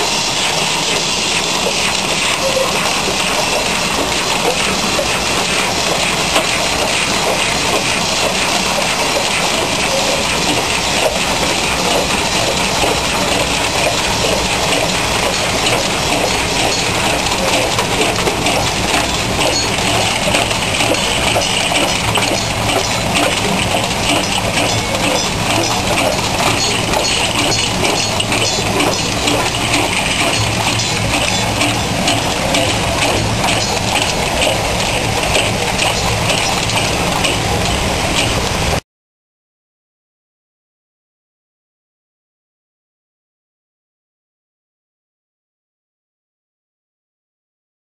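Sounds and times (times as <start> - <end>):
bottle filling machine clattering: 0.0 - 38.8.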